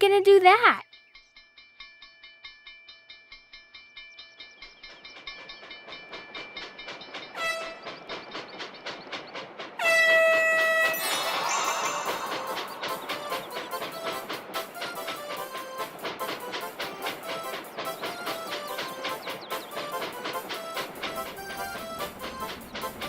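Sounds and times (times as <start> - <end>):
cartoon train chugging: 4.2 - 23.0
train whistle toot: 7.4 - 7.9, 9.8 - 23.0.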